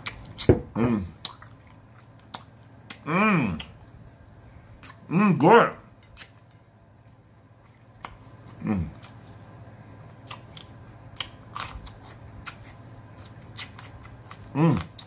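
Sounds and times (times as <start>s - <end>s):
person chewing with lip smacks: 0.0s - 4.2s, 4.8s - 5.1s, 6.0s - 9.6s, 10.2s - 15.0s
person humming mm: 3.0s - 3.7s, 14.5s - 15.0s.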